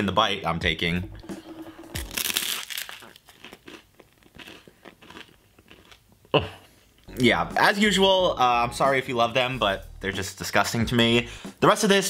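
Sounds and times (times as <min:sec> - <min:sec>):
crunchy bite into toast: 0:02.0 - 0:06.0
chewing with small crunches: 0:02.0 - 0:07.1.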